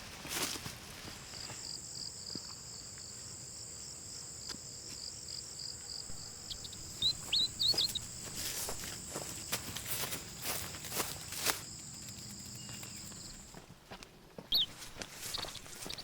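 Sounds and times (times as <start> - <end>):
insects droning: 0.3 - 13.7, 14.5 - 16.0
rapid pulsed insect chirping: 1.2 - 13.6, 14.5 - 16.0
bird chirping: 6.1 - 8.6, 12.1 - 13.5, 14.5 - 16.0.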